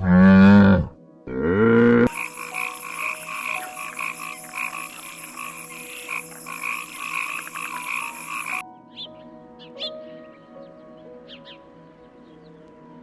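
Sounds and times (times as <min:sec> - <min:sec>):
chorus of croaks: 0:02.0 - 0:08.6
faint chirps: 0:02.1 - 0:08.6.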